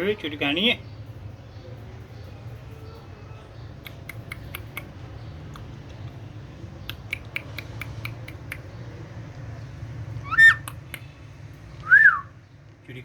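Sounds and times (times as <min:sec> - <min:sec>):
parrot clicking chirps: 0:03.8 - 0:05.7, 0:06.8 - 0:08.7, 0:10.3 - 0:11.1.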